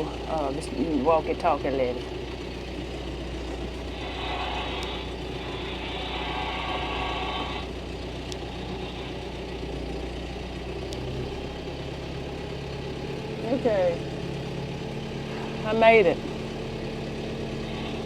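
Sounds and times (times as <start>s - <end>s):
tractor engine at low revs: 0.0s - 18.0s
hiss: 3.9s - 7.7s
faint clicks: 8.2s - 8.5s.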